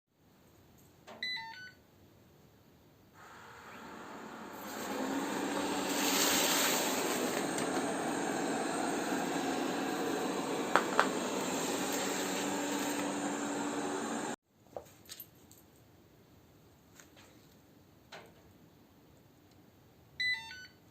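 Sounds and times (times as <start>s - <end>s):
robot vacuum cleaner running: 3.2s - 14.4s.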